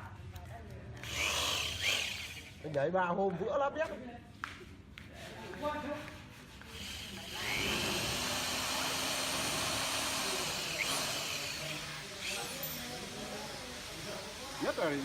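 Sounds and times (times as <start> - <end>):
power tool motor whirring: 1.0 - 2.6, 6.8 - 15.0.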